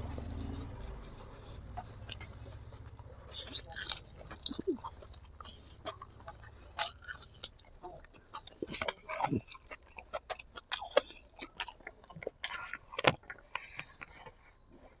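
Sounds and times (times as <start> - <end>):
wet chewing and mouth smacks: 0.0 - 15.0.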